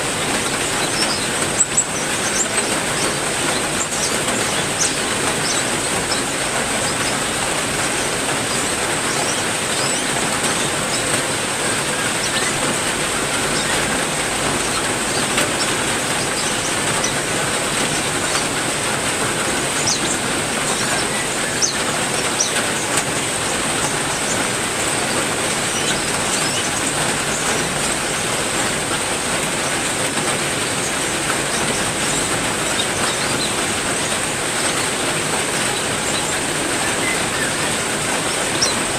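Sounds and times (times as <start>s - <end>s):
heavy rain: 0.0s - 38.9s
high bird chirps: 0.2s - 18.6s.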